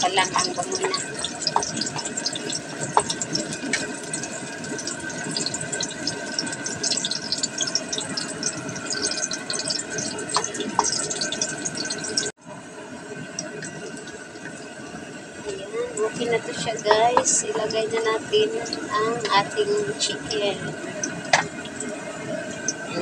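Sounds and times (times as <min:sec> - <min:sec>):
garlic and onion sizzling in oil: 0:00.0 - 0:12.8.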